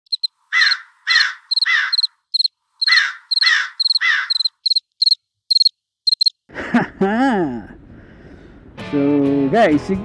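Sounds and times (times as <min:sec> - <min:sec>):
bird calling harshly: 0:00.1 - 0:06.3
high-pitched chirping: 0:00.1 - 0:06.4.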